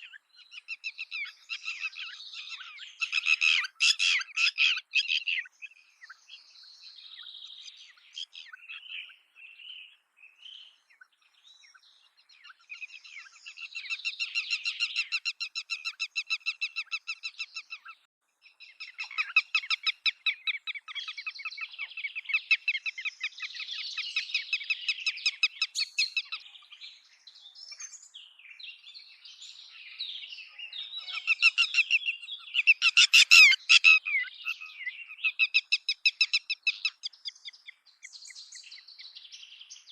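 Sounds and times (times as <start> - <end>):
lapwing calling: 0.0 - 6.2, 30.7 - 38.2.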